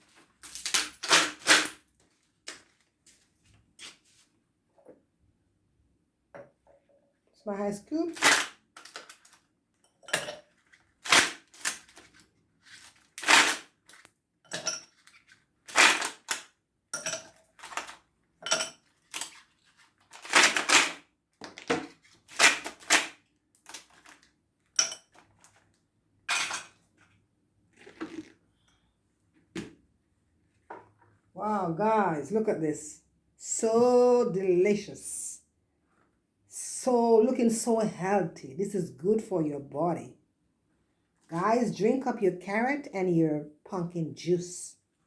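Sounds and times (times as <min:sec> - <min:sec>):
ice cubes clinking into container: 0:12.7 - 0:25.6.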